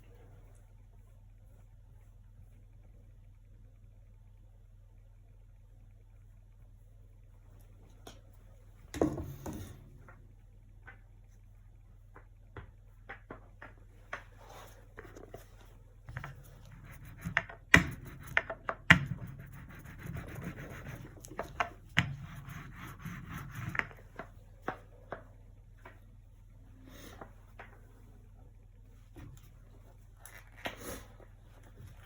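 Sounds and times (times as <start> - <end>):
paint strokes rubbing and scratching: 14.3 - 24.2.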